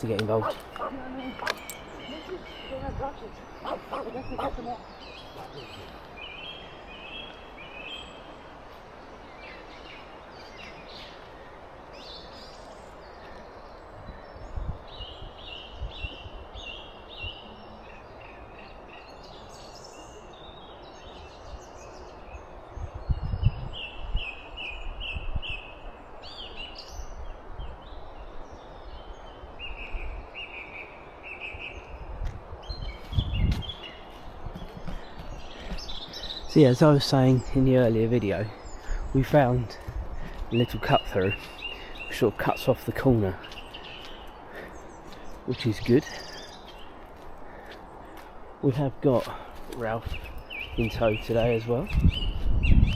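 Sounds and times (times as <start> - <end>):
birds chirping: 0.0 - 52.9
steady outdoor hiss: 0.0 - 52.9.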